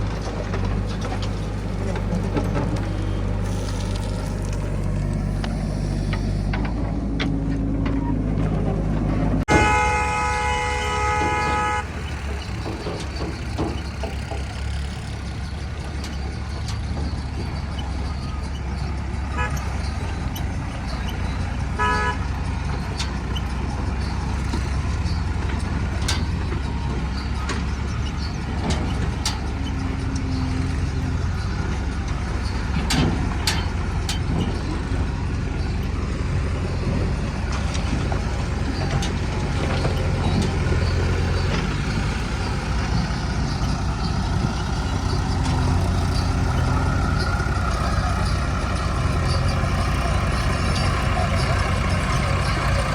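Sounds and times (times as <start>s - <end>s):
diesel engine running: 0.0s - 52.9s
vehicle horn: 9.5s - 12.3s, 19.3s - 19.8s, 21.8s - 22.3s.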